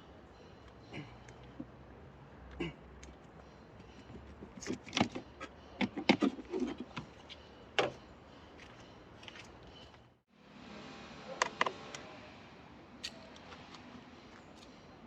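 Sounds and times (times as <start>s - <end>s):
clicks and knocks of hand work: 3.0s - 8.0s.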